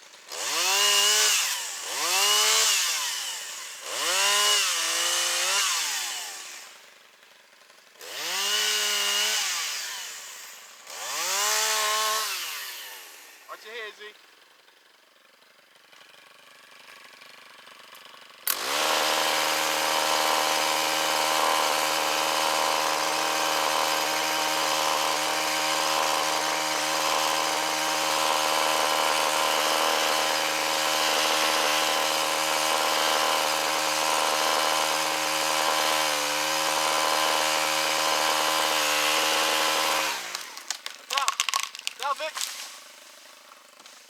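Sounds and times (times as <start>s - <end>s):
chainsaw running at high throttle: 0.0s - 14.0s, 15.3s - 44.0s.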